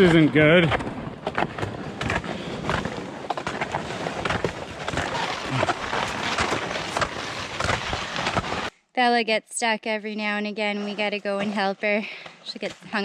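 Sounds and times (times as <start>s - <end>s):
footsteps crunching in slush: 1.2s - 8.7s.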